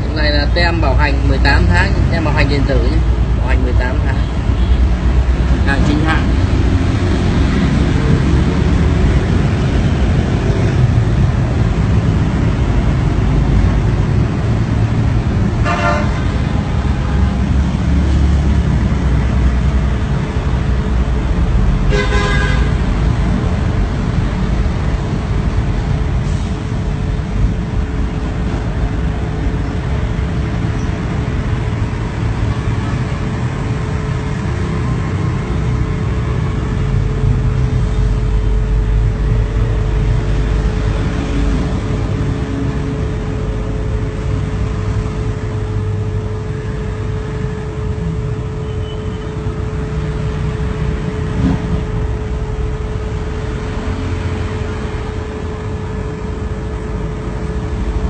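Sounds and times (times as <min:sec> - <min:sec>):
road traffic: 0:00.0 - 0:58.0
vehicle horn tooting: 0:15.6 - 0:16.4, 0:21.9 - 0:22.8.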